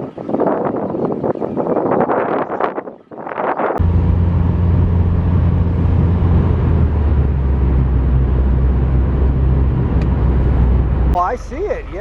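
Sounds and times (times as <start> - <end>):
car engine and tyres droning: 3.8 - 12.0
person speaking: 11.2 - 12.0.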